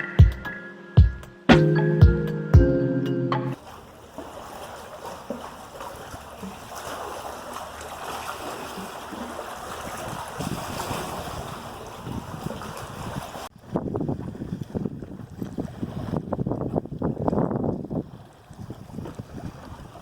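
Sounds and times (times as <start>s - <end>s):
wind: 0.0s - 20.0s
rushing water: 3.6s - 13.6s
wind buffeting microphone: 9.7s - 20.0s.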